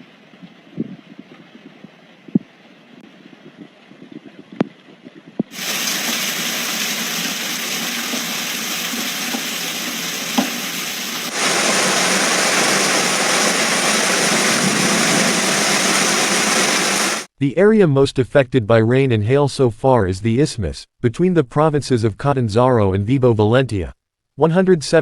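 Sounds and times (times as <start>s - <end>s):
heavy rain hissing: 5.5s - 17.3s.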